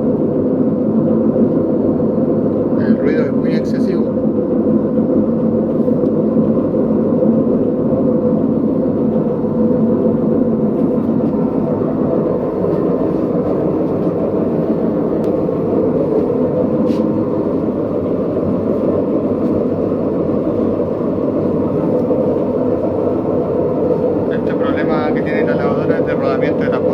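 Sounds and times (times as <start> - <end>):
washing machine drum spinning: 4.4 - 26.9.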